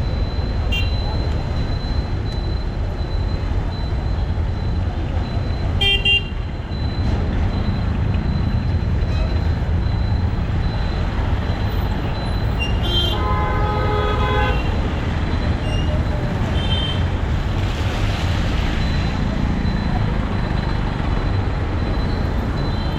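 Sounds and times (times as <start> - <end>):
traffic engines and road noise: 0.0 - 22.9
vehicle horns honking: 5.8 - 6.4, 12.6 - 14.8.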